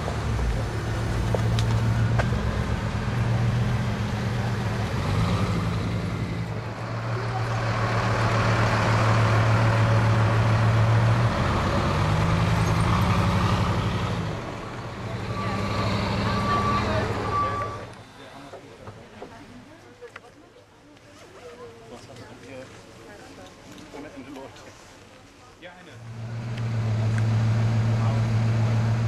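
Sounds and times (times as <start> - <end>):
car engine at low revs: 0.0 - 15.2, 26.0 - 29.0.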